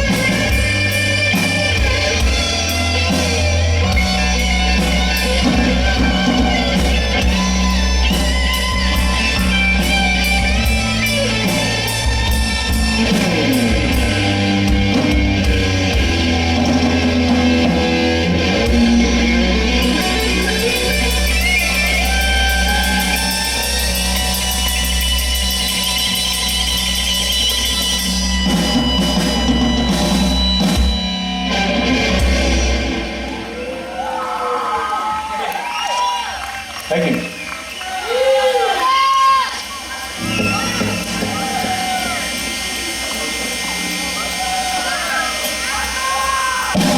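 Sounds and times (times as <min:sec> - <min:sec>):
electric guitar solo: 0:00.0 - 0:35.3, 0:38.0 - 0:46.9
rock band playing: 0:00.0 - 0:46.9.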